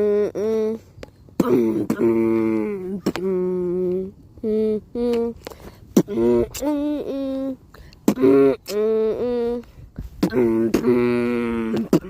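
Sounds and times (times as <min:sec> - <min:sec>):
person humming melody notes: 0:00.0 - 0:12.0
beatbox percussion hits: 0:01.4 - 0:04.1, 0:05.0 - 0:06.8, 0:07.8 - 0:12.0.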